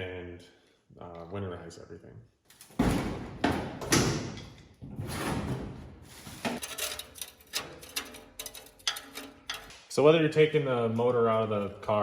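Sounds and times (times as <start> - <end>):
knocks and scraping of tools: 2.5 - 9.8
light clicks and rattles: 6.6 - 9.8.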